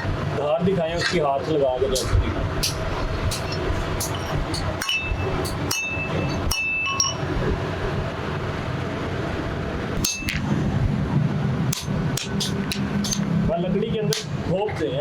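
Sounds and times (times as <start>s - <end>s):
steady background noise: 0.0s - 15.0s
cleaver blade metallic clinks: 2.0s - 7.3s, 10.0s - 10.4s, 11.7s - 13.2s.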